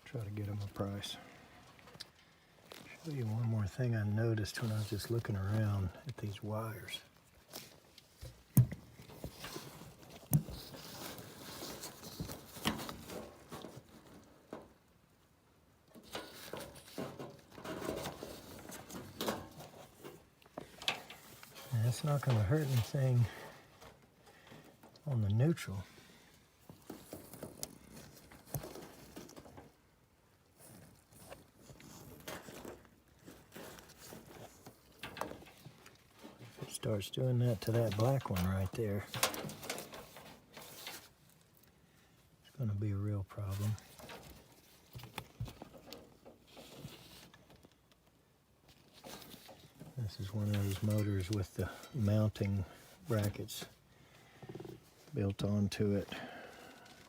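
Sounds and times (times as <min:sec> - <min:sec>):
rustling: 0:00.0 - 0:57.0.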